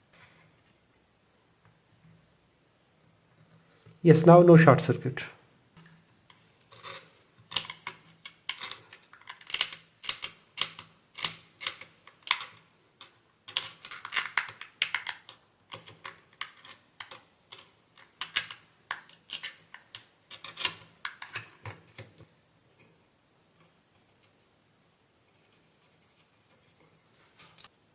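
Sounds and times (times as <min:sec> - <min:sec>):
clicks and taps of small objects: 0:05.8 - 0:23.0.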